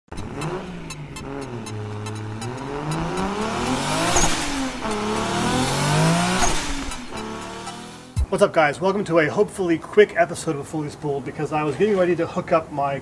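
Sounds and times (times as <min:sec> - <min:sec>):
car engine revving: 0:00.1 - 0:08.3.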